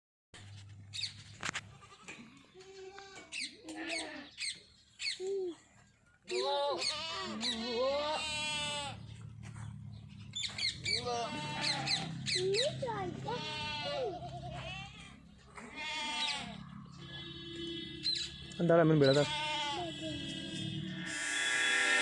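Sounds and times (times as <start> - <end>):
goats bleating: 1.7 - 4.4, 6.3 - 9.1, 10.9 - 21.1.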